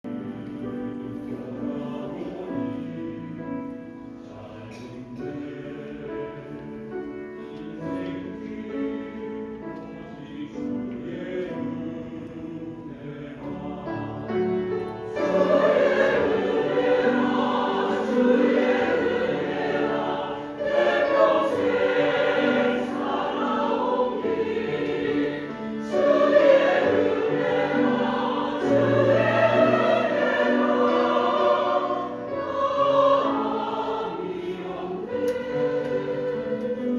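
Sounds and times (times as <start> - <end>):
choir singing: 0.1 - 36.9.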